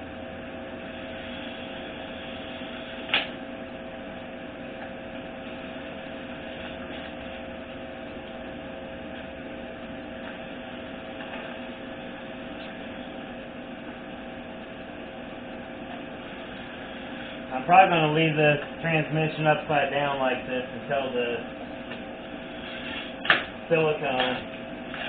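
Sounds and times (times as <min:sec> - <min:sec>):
electrical hum: 0:00.0 - 0:25.0
sharp click: 0:03.1 - 0:03.4.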